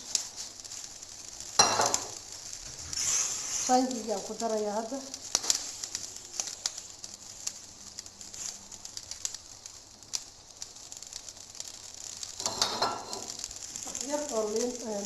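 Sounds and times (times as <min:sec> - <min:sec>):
faint hiss: 0:00.0 - 0:15.0
utensils tapping a pot: 0:01.6 - 0:02.2, 0:12.4 - 0:13.4.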